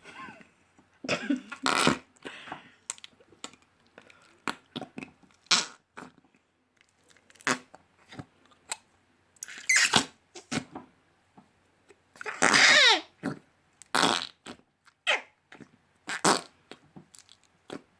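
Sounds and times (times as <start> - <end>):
slime squelching and popping: 13.2 - 17.9.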